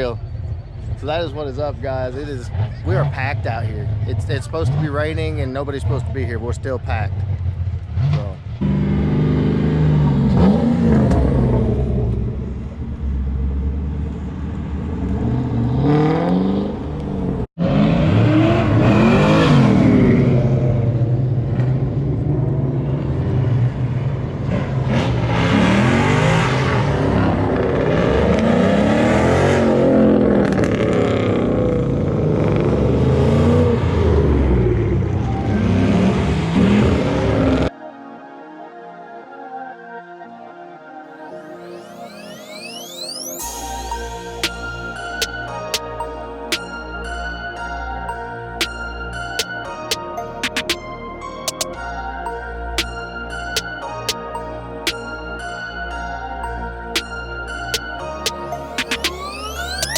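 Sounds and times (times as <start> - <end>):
car engines revving: 0.0 - 37.7.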